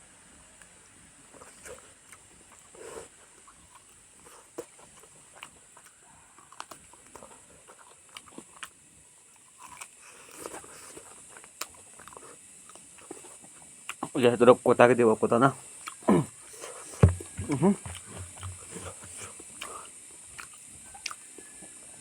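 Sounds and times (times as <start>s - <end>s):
person chewing: 0.6s - 14.2s, 15.6s - 21.8s
wet mouth smacks: 17.2s - 21.2s.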